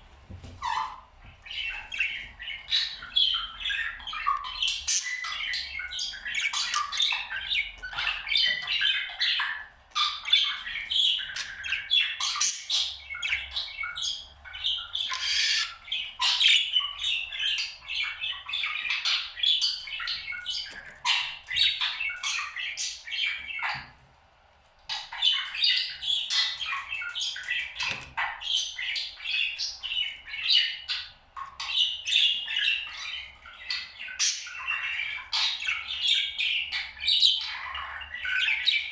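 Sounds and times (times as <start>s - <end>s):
parrot chattering and squawking: 0.6s - 23.9s.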